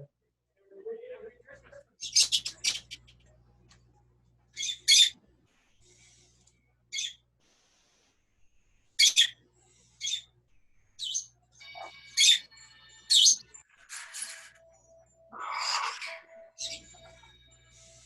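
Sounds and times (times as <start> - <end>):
parrots chirping and squawking: 2.0 - 3.2, 4.6 - 5.2, 6.9 - 7.2, 9.0 - 10.3, 11.0 - 14.6, 15.3 - 18.0.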